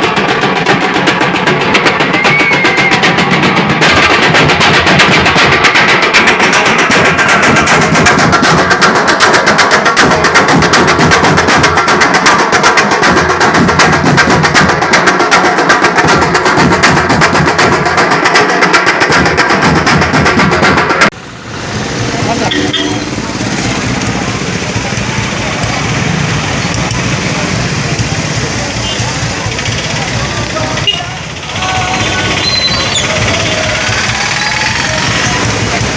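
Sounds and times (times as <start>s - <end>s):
drum troupe playing fast beat: 0.0s - 35.9s.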